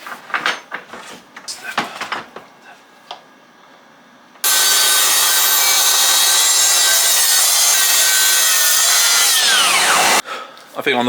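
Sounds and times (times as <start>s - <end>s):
power saw cutting timber: 4.4s - 10.2s.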